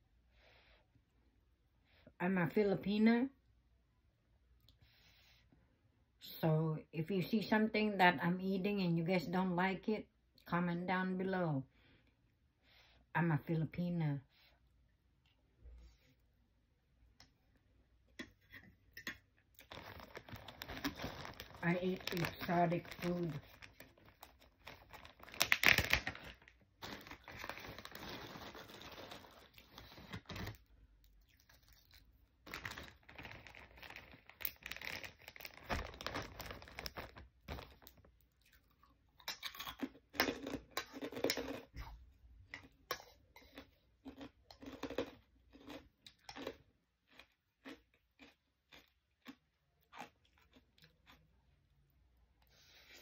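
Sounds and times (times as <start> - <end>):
plastic bag crinkling: 19.6 - 30.7, 31.4 - 38.3
crunchy chewing: 26.8 - 51.3.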